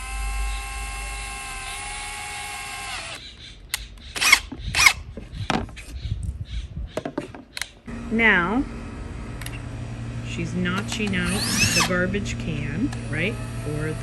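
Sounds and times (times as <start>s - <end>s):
electric drill running: 0.0s - 3.2s, 4.2s - 5.0s, 7.9s - 14.0s.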